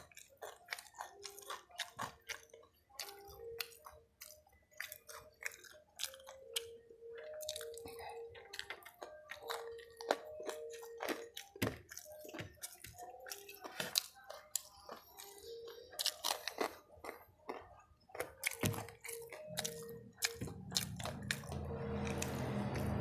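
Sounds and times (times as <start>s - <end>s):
person chewing crispy food: 0.0s - 23.0s
low rumble: 20.6s - 23.0s.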